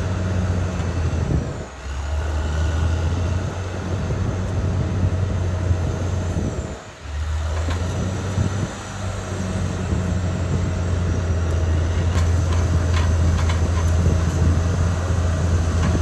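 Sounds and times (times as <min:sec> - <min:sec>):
bulldozer diesel engine drone: 0:00.0 - 0:16.0.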